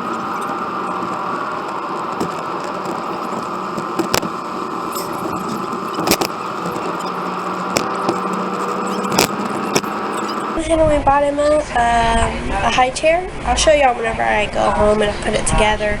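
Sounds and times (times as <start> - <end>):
road and engine noise in car: 0.0 - 10.6
sharp clicks and rattles: 0.0 - 10.6.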